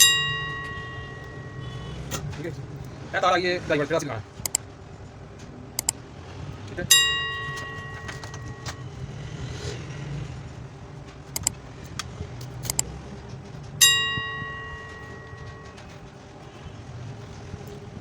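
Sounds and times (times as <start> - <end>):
metallic clinks: 0.0 - 1.9, 6.9 - 9.0, 13.8 - 16.1
low steady hum: 0.0 - 18.0.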